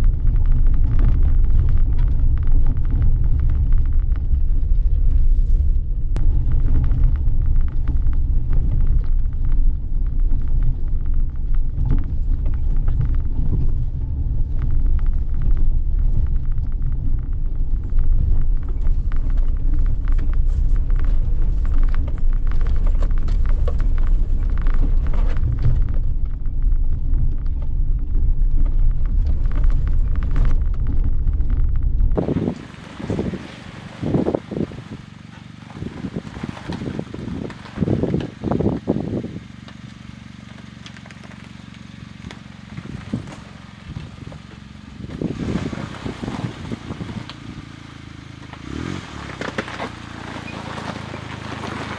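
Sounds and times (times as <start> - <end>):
engine and tyres rumbling: 0.0 - 51.9.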